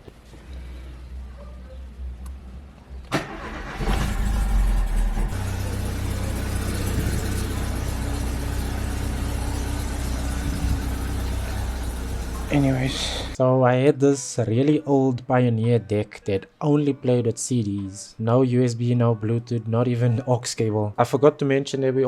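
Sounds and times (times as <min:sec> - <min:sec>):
car engine starting and idling: 0:03.0 - 0:13.4.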